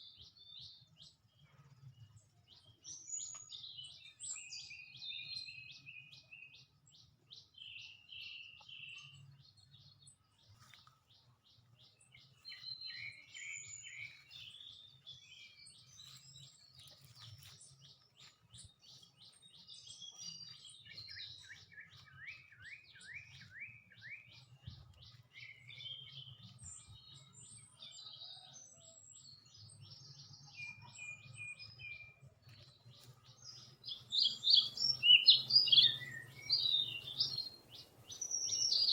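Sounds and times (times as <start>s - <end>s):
small birds chirping and trilling: 0.0s - 38.9s.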